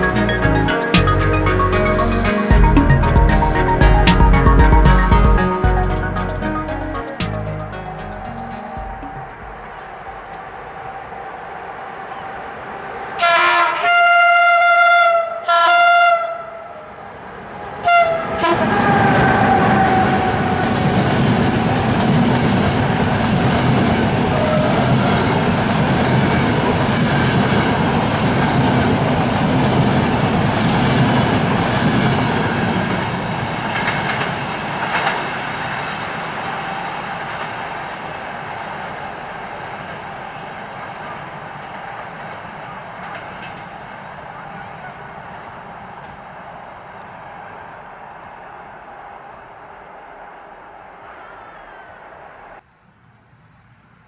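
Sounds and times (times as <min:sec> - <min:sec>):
train wheels rumbling on rail: 0:18.6 - 0:46.2.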